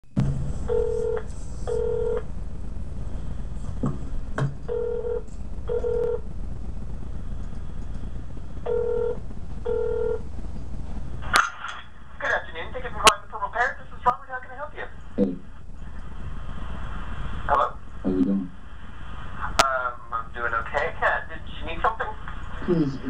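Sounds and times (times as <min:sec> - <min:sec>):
low line hum: 0:00.0 - 0:23.0
telephone ringing tone beeps: 0:00.7 - 0:02.2, 0:04.7 - 0:06.2, 0:08.7 - 0:10.2.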